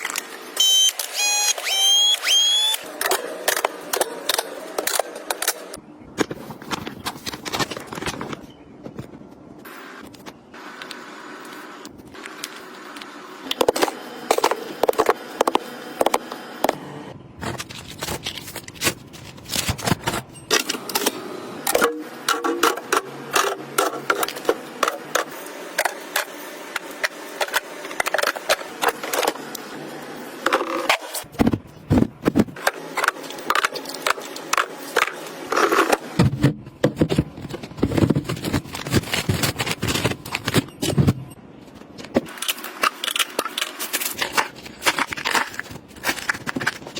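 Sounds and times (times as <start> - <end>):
items clicking and scraping: 2.9 - 16.8, 17.4 - 29.7, 30.4 - 46.9
packaging rustling: 17.4 - 20.3, 36.8 - 46.9.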